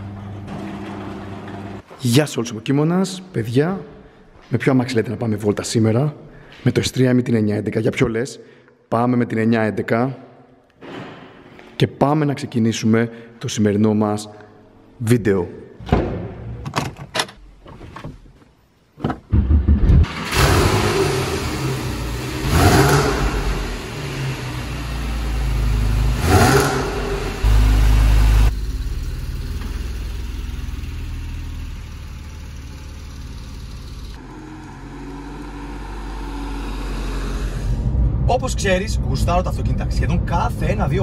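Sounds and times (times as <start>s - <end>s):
car engine starting and revving: 19.3s - 41.0s
car engine running: 19.4s - 37.9s.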